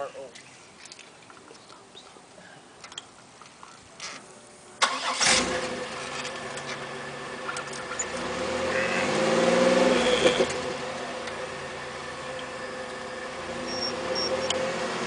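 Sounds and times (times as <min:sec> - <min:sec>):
car engine revving: 0:04.8 - 0:15.0
car engine starting and idling: 0:04.8 - 0:15.0.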